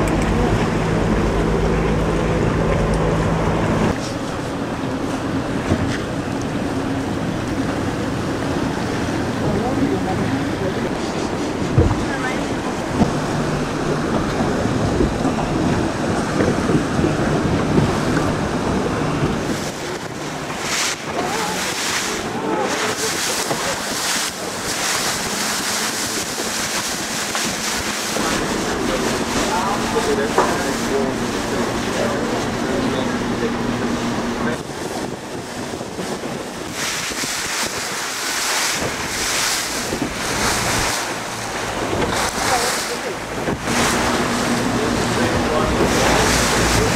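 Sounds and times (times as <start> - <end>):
boat engine running: 0.0 - 46.9
water rushing past hull: 0.0 - 46.9
wind buffeting microphone: 0.0 - 46.9.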